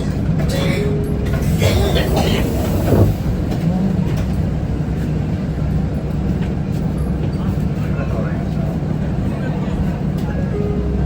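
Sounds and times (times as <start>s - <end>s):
bus diesel engine humming: 0.0s - 11.0s.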